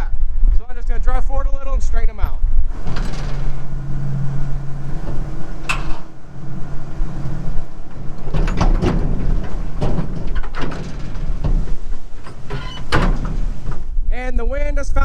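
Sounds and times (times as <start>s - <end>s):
clunks and rattles of wagons: 2.7s - 13.9s.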